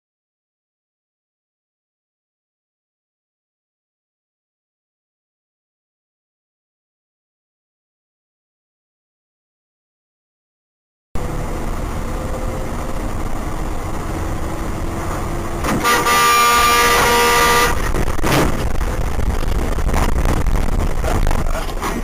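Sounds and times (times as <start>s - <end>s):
car engine and tyre rumble: 11.2s - 22.0s
car horn blast: 15.6s - 18.5s.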